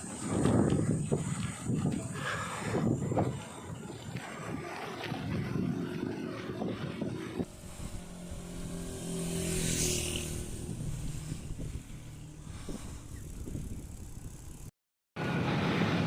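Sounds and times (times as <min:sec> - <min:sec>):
vehicle engine hum: 0:00.0 - 0:16.0
wind and road noise: 0:00.0 - 0:16.0.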